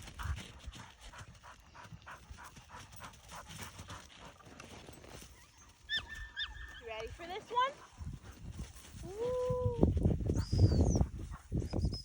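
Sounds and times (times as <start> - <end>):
dog panting rapidly: 0.0 - 4.7, 7.3 - 9.0.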